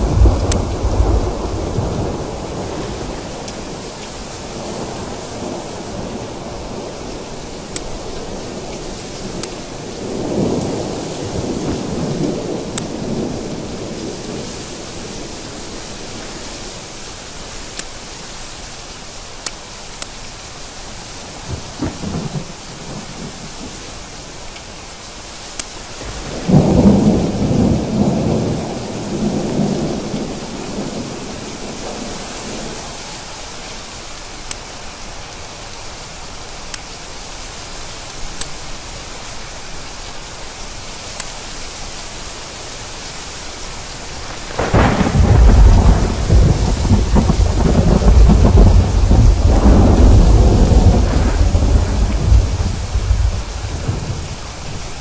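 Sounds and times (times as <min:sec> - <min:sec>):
thunder rumbling: 0:00.0 - 0:16.2, 0:21.4 - 0:23.9, 0:26.0 - 0:33.0, 0:44.0 - 0:55.0
steady rain: 0:00.0 - 0:55.0
sharp ticks: 0:00.4 - 0:00.8.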